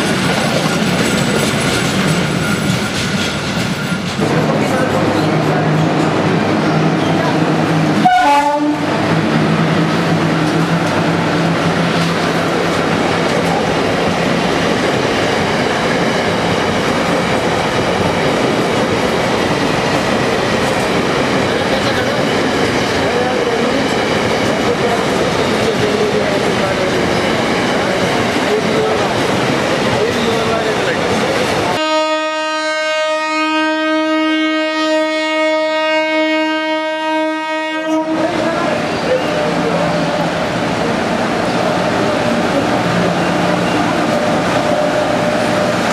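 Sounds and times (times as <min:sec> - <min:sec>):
train wheels rumbling on rails: 0:00.0 - 0:33.5, 0:34.3 - 0:45.9
locomotive horn blast: 0:08.0 - 0:09.0, 0:31.8 - 0:38.5.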